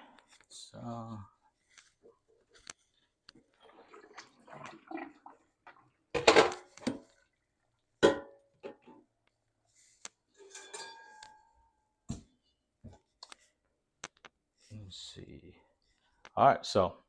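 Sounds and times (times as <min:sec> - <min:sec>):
cookware clatter with metallic ring: 0:10.4 - 0:11.5
metal cookware clanking: 0:10.4 - 0:11.6.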